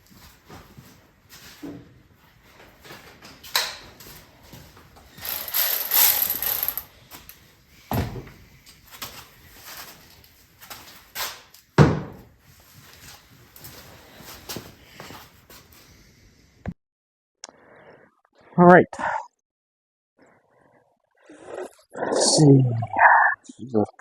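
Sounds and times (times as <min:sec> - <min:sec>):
hand tools clicking: 0:05.2 - 0:06.9
rattling scrape: 0:05.2 - 0:06.9.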